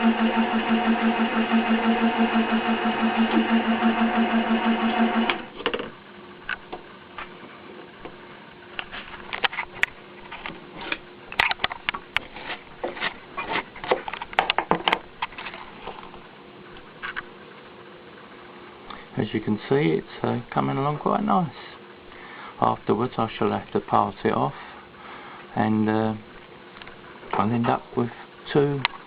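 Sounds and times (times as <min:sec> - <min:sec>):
milling machine running: 0:00.0 - 0:06.8
faint steady hum: 0:00.0 - 0:29.0.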